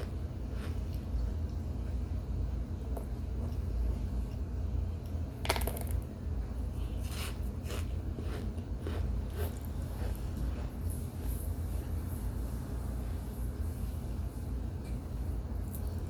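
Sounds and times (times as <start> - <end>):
steady low hum: 0.0 - 16.0
chunk being bitten and chewed: 7.0 - 10.7.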